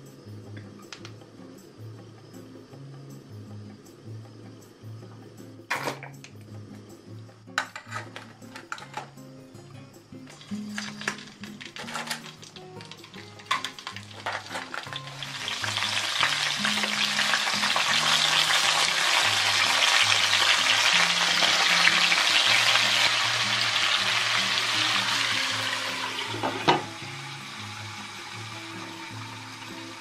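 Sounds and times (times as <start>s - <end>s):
seafood sizzling in a wok: 10.2s - 30.0s
metal tongs clicking on wok: 10.7s - 14.9s
glass lid clanking: 26.3s - 26.9s.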